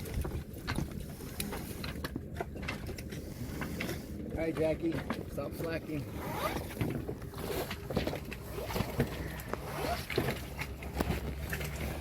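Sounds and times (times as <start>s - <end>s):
low steady hum: 0.0s - 12.0s
rope clicking and rubbing through hardware: 5.9s - 12.0s.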